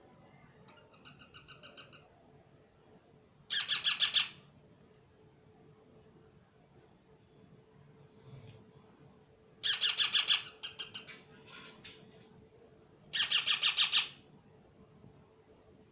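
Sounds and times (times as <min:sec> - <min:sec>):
parrot calling: 0:09.6 - 0:11.1, 0:13.2 - 0:14.2.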